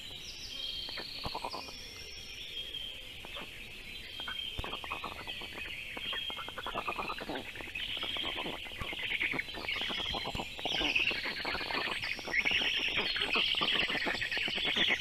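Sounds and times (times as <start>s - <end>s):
songbirds whistling: 0.0s - 15.0s
nestlings rasping calls: 0.9s - 1.7s, 4.1s - 15.0s.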